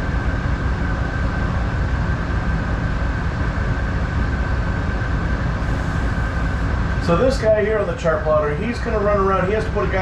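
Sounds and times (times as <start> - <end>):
thin steady whine: 0.0 - 10.0
diesel engine rumble: 5.5 - 9.7.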